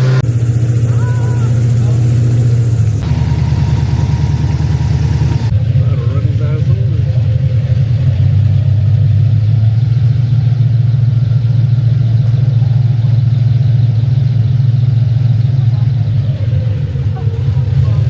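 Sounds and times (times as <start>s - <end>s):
low engine drone: 0.0s - 18.0s.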